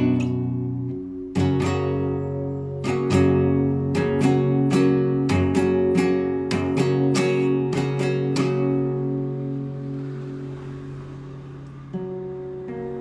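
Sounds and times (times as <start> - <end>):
classical guitar arpeggios: 0.0 - 13.0.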